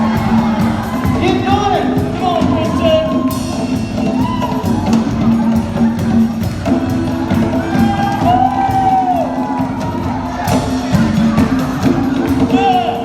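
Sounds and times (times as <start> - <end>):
crowd cheering: 0.0 - 13.0
live band playing disco: 0.0 - 13.0.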